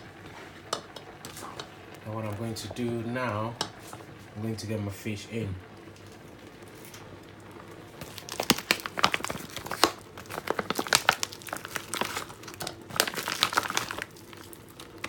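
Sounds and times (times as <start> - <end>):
packaging crinkling and rustling: 5.9 - 15.0.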